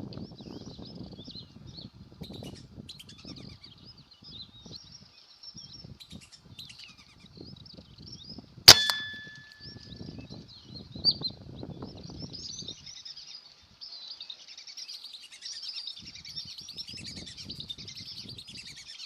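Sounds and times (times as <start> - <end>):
sharp metallic clang: 8.7 - 9.8.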